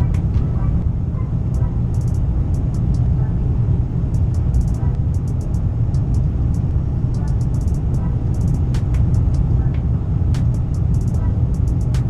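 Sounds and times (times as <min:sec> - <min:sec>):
sharp clicks: 0:00.0 - 0:00.4, 0:01.6 - 0:03.2, 0:04.2 - 0:09.6, 0:10.4 - 0:12.0
train rumbling at speed: 0:00.0 - 0:12.0
light high ticks: 0:01.6 - 0:03.2, 0:04.1 - 0:09.8, 0:10.4 - 0:12.0.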